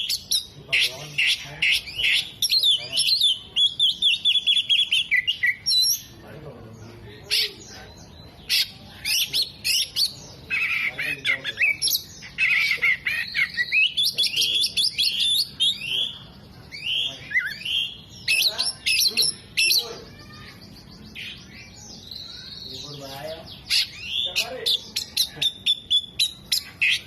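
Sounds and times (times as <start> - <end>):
magpie-robin singing: 0.0 - 27.0.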